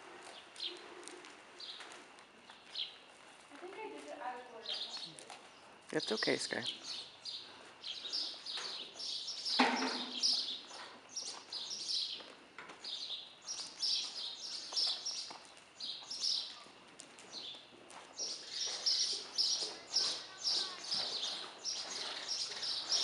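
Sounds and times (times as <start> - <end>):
small birds chirping: 0.2 - 23.0.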